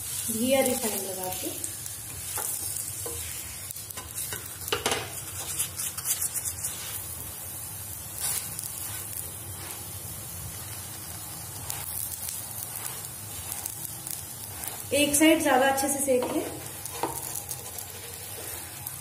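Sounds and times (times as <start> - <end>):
flatbread sizzling in oil: 0.0 - 19.0
spatula knocking and scraping: 3.9 - 7.0, 16.2 - 18.6.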